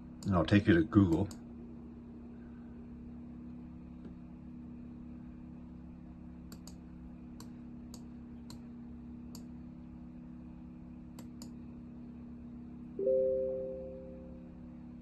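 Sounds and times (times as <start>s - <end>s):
steady low hum: 0.0s - 15.0s
computer mouse clicking: 6.5s - 6.8s.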